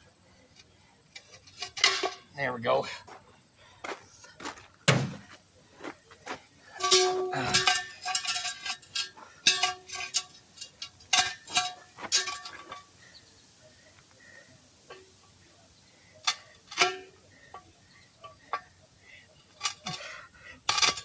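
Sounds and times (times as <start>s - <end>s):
metal tool clinking on wheel rim: 1.1s - 2.3s, 6.7s - 13.0s, 16.2s - 18.8s, 19.4s - 21.0s.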